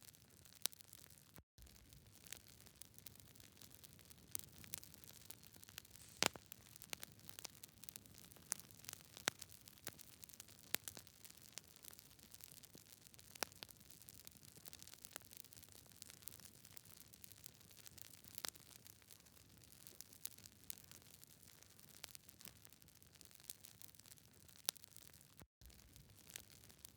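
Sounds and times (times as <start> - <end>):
campfire crackling and popping: 1.8 - 18.8, 19.6 - 26.9
faint steady hiss: 5.8 - 6.6.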